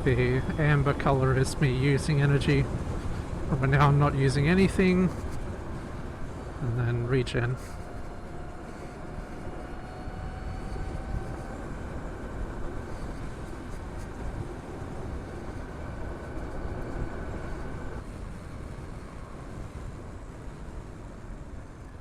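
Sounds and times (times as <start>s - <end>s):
wind rushing on microphone: 0.0s - 22.0s.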